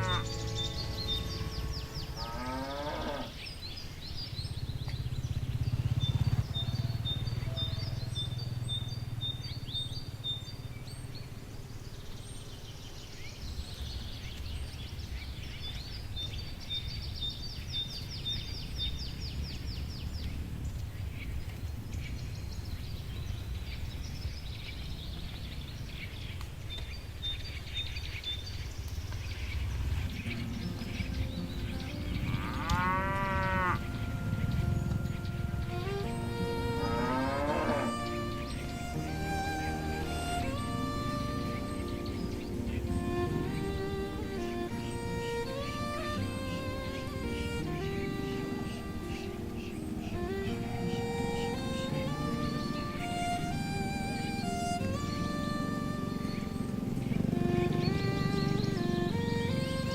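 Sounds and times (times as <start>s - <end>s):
cow mooing: 0.0s - 3.4s, 31.2s - 38.5s
high chirps: 0.0s - 3.4s
steady low rumble: 0.0s - 11.7s, 28.5s - 37.1s.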